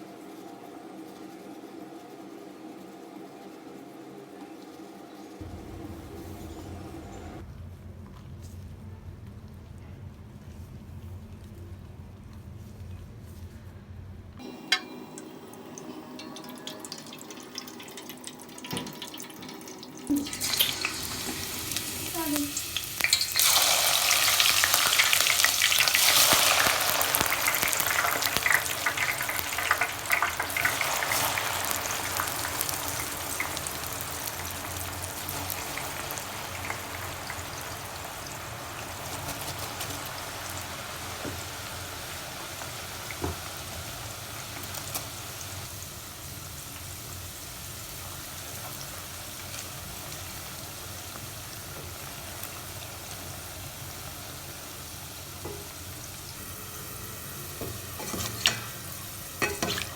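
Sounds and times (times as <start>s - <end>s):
onions sizzling in oil: 14.4s - 59.9s.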